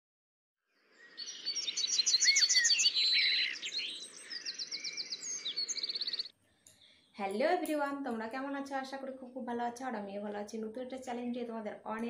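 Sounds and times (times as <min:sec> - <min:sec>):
birds chirping and singing: 0:01.0 - 0:06.9.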